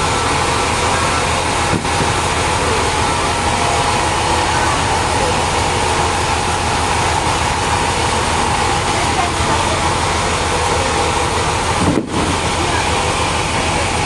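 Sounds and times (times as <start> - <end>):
sawmill machinery din: 0.0 - 14.0
steady machine whine: 0.0 - 14.0.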